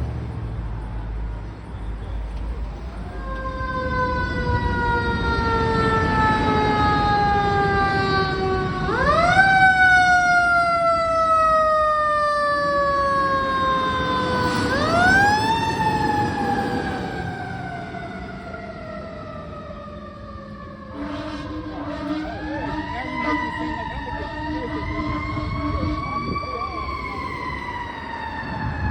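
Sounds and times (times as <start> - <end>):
truck low rumble: 0.0 - 28.9
fire engine siren wailing: 2.2 - 28.9.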